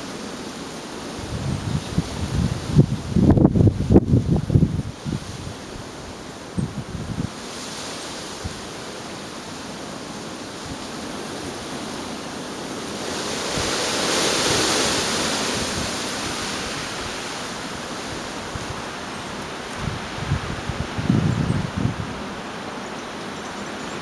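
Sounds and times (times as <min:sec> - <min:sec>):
storm wind blowing hard: 0:01.0 - 0:08.6, 0:12.9 - 0:24.0.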